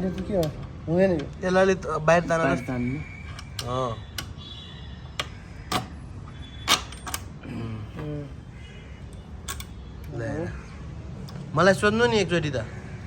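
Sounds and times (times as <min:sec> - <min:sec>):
metallic clicks and knocks of tools: 0:00.0 - 0:01.4, 0:03.2 - 0:04.4, 0:06.7 - 0:07.4, 0:09.1 - 0:09.8.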